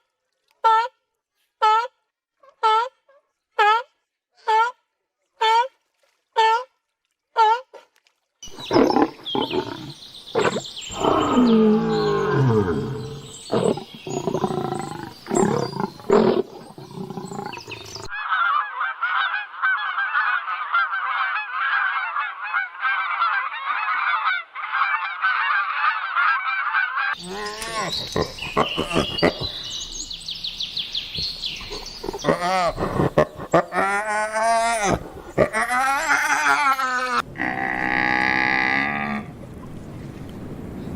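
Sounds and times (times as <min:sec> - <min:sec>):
chorus of chirping calls: 0:08.4 - 0:22.0, 0:27.0 - 0:34.1.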